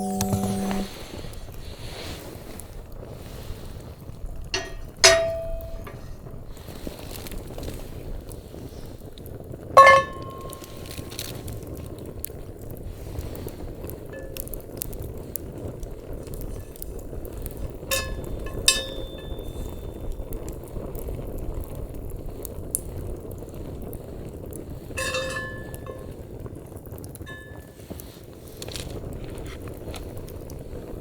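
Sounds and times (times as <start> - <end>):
wood fire crackling: 2.2 - 31.0
ringing clinks of metal or glass: 9.8 - 10.8, 25.0 - 26.0.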